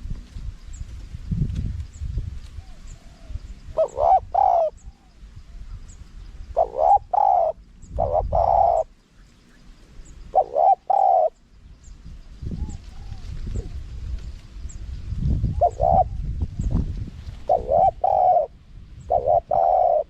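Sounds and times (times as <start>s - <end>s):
dove cooing: 2.6s - 5.2s, 6.5s - 9.0s, 10.3s - 11.4s, 12.6s - 13.8s, 15.5s - 16.3s, 17.4s - 20.0s.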